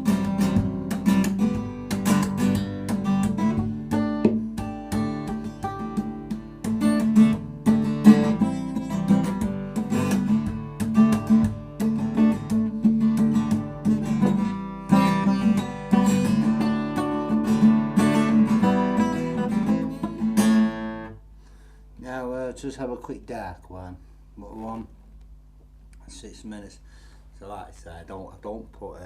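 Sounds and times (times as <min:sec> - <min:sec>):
acoustic guitar strumming: 0:00.0 - 0:21.3.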